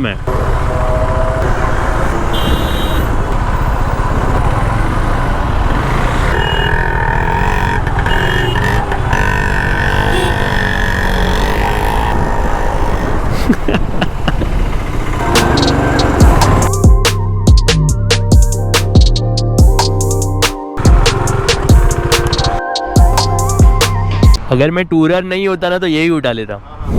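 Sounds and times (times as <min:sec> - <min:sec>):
motorcycle engine and road rumble: 0:00.0 - 0:16.8, 0:20.8 - 0:22.6
vehicle horn: 0:00.5 - 0:03.4, 0:05.8 - 0:10.8.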